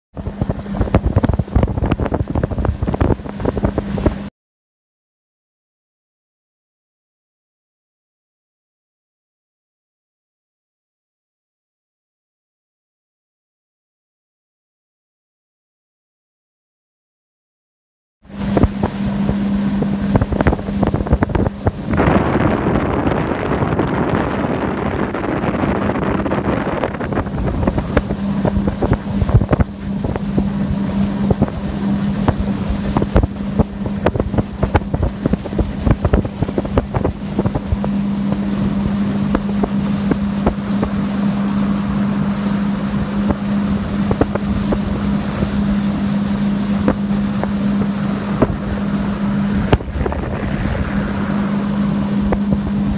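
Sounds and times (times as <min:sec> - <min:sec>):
outboard motor drone: 0:00.1 - 0:04.3, 0:18.2 - 0:52.9
wind noise on microphone: 0:00.2 - 0:04.3, 0:18.3 - 0:52.9.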